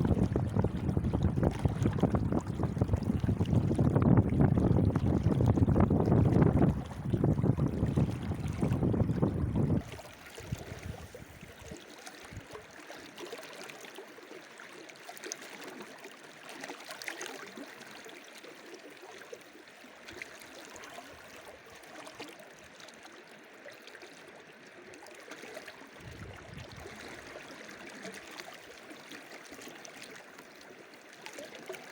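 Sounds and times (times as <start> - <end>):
wind noise on microphone: 0.0 - 12.6, 26.0 - 27.3
small ticks and splashes: 0.0 - 31.9
flowing water hiss: 9.8 - 12.4.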